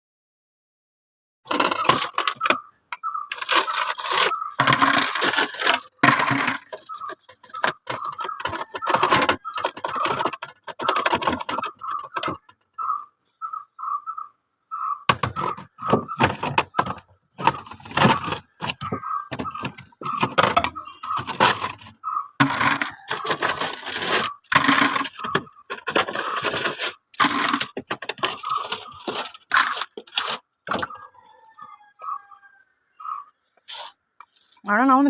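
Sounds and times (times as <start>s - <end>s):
ice cracking and knocking: 1.5s - 2.6s, 3.3s - 12.5s, 15.1s - 30.9s.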